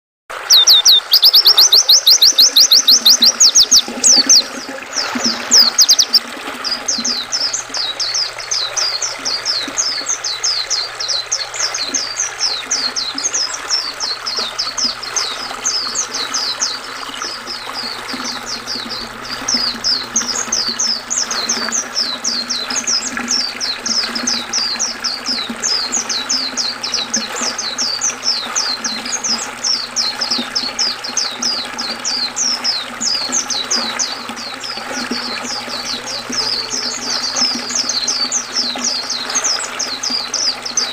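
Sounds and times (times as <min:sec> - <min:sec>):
river water rushing: 0:00.3 - 0:27.0
bird twittering high notes: 0:00.4 - 0:06.2.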